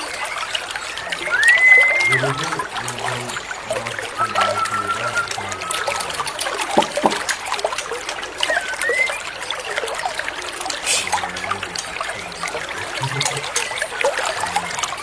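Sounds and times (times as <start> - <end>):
bird whistles and chirps: 0.0 - 7.3, 8.4 - 9.6
water trickling and splashing: 0.0 - 15.0.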